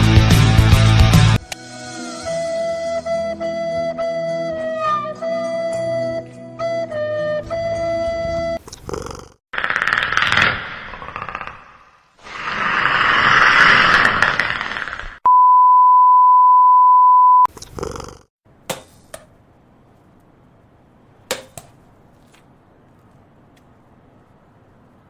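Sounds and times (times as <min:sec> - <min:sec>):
high electronic beep: 0:15.3 - 0:17.5.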